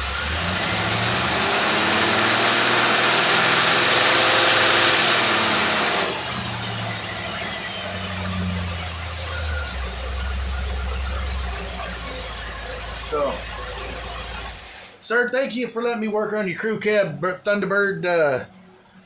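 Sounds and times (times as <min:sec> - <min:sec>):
hissing rush of intake air: 0:00.0 - 0:15.0
engine revving up: 0:00.0 - 0:15.1.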